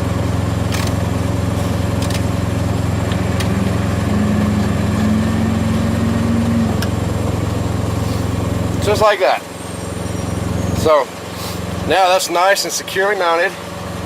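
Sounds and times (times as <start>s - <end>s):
diesel truck engine idling: 0.0s - 14.0s
high-pitched whine: 2.3s - 10.8s.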